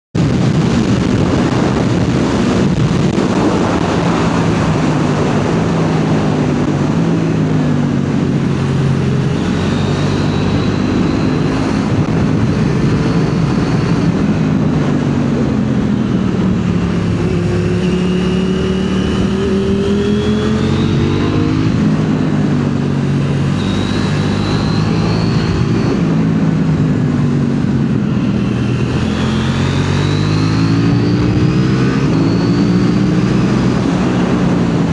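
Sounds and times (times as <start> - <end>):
motorcycle engine accelerating: 0.2 - 34.9
steady rushing noise: 0.2 - 34.9.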